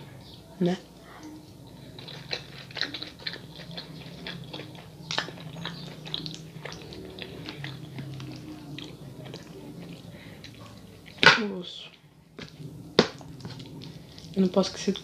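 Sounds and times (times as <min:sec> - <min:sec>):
chewing crisp lettuce: 0:01.1 - 0:15.0.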